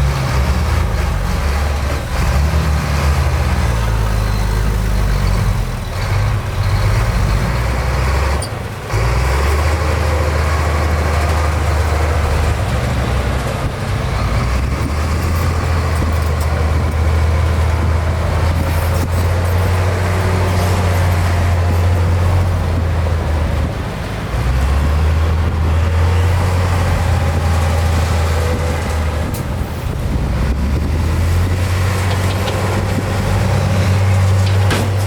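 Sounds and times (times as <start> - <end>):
heavy diesel machinery engine drone: 0.0 - 35.0
machinery clattering: 30.8 - 35.0.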